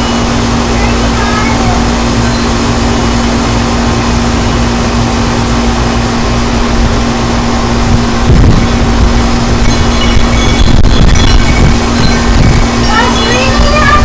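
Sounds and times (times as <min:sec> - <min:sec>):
steady low hum: 0:00.0 - 0:14.0
wind buffeting microphone: 0:00.0 - 0:14.0.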